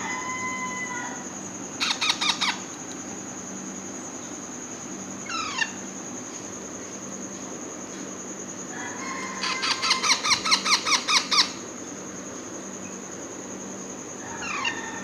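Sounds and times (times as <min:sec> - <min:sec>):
parakeet chick squawking: 0:01.8 - 0:02.6, 0:09.4 - 0:11.6.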